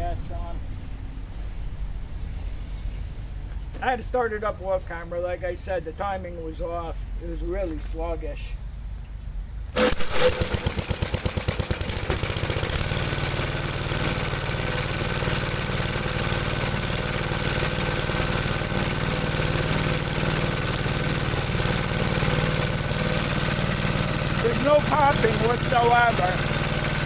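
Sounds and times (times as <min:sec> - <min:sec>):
single-cylinder engine running: 0:09.7 - 0:27.0.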